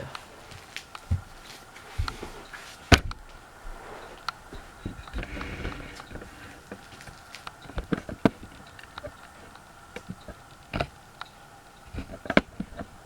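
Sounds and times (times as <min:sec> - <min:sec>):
faint steady hum: 0:00.0 - 0:13.0
sharp clicks and knocks: 0:04.2 - 0:13.0.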